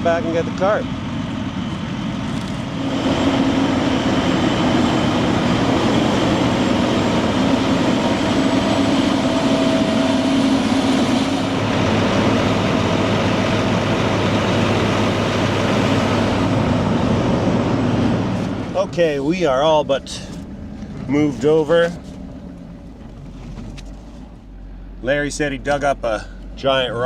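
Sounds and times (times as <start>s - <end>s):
heavy vehicle engine droning: 0.0s - 27.0s.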